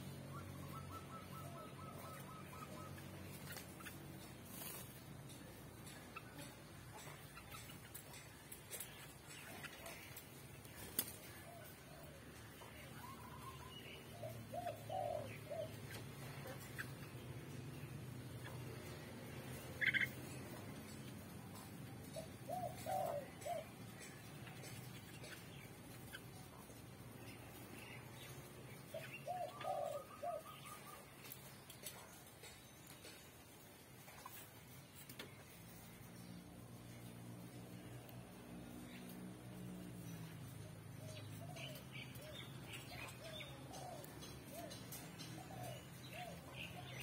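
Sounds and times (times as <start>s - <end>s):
pigeon cooing: 0.0s - 17.6s, 18.3s - 26.8s, 28.3s - 33.2s, 38.7s - 47.0s
pigeon whistled calls: 0.3s - 3.1s.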